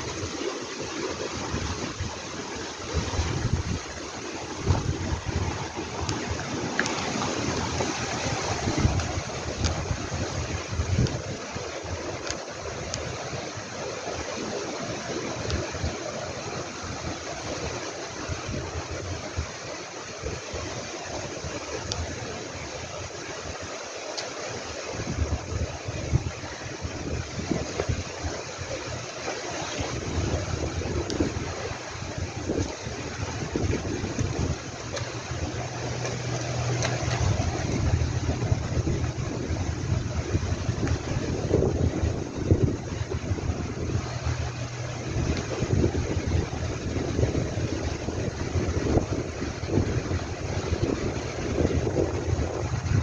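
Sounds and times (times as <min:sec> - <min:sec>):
low engine hum: 0:00.0 - 0:53.0
wind on microphone: 0:00.0 - 0:53.0
low rumbles: 0:01.3 - 0:13.3, 0:25.0 - 0:53.0.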